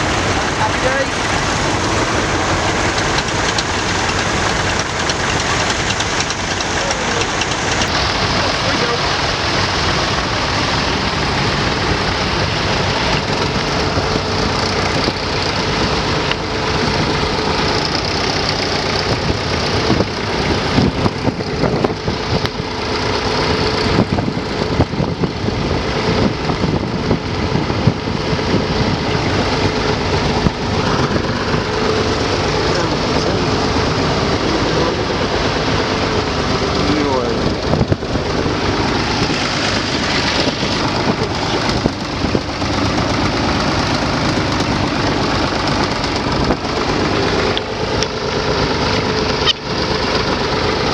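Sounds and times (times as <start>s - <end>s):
tractor engine running: 0.0s - 50.9s
sharp knocks and clatter: 1.2s - 8.6s.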